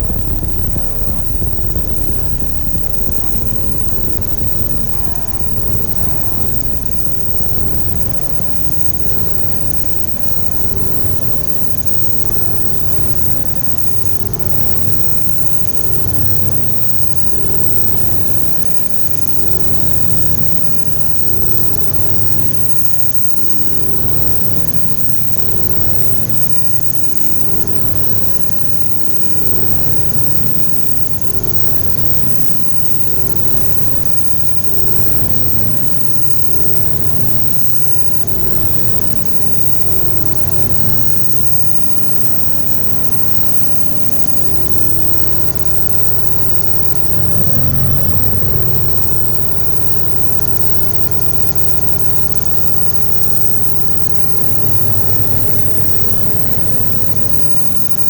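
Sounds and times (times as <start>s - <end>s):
synthesizer drone music: 0.0s - 22.6s.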